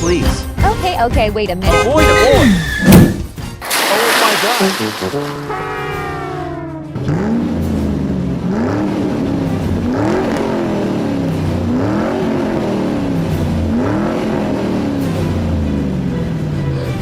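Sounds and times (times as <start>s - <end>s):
vehicle engine revving: 5.2s - 16.6s.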